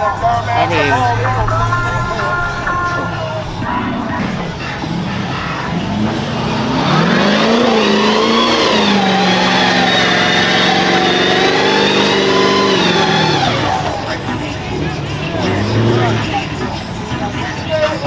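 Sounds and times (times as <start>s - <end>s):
vehicle engine revving hard: 4.2s - 17.6s.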